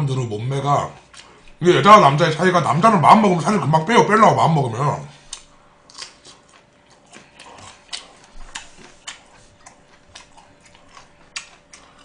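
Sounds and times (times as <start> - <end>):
chewing fish: 1.0 - 1.6, 5.2 - 12.0.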